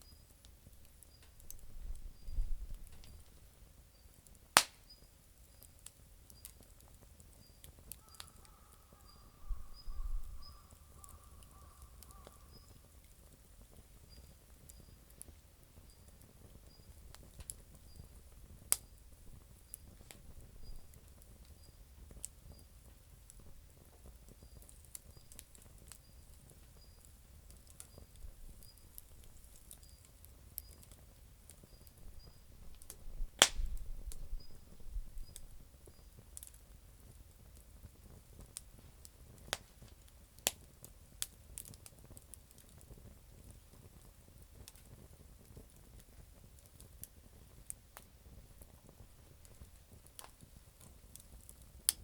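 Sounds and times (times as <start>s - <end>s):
campfire crackling and popping: 0.0s - 52.0s.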